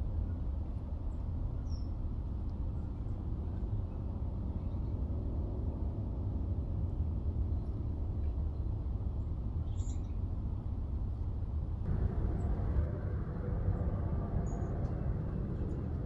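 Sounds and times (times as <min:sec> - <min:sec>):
low background rumble: 0:11.8 - 0:16.0.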